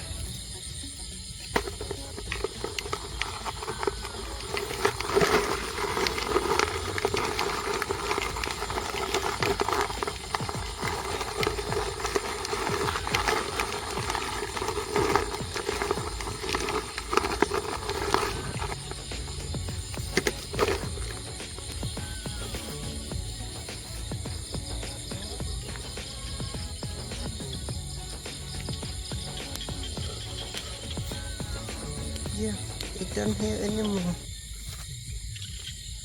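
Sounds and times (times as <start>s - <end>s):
steady rustling: 0.0s - 35.1s.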